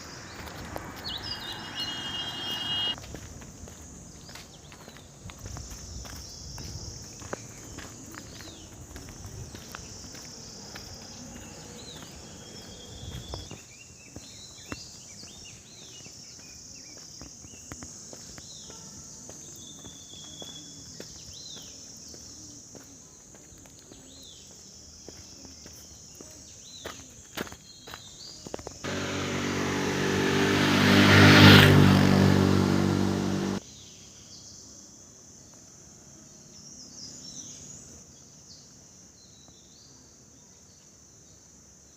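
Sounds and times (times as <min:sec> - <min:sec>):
high-pitched insect chorus: 0:00.0 - 0:29.6
bird chirps and calls: 0:00.3 - 0:03.0
loud engine-like drone with hiss: 0:28.8 - 0:31.0.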